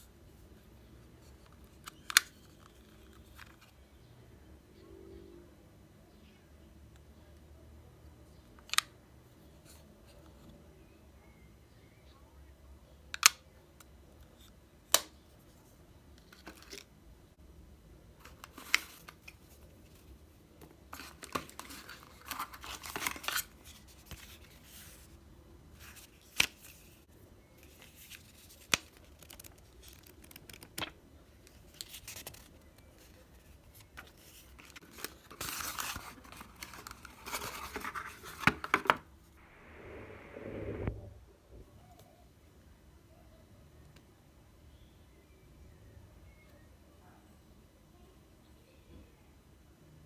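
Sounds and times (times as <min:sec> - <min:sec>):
packaging rustling and scraping: 0:34.0 - 0:38.9.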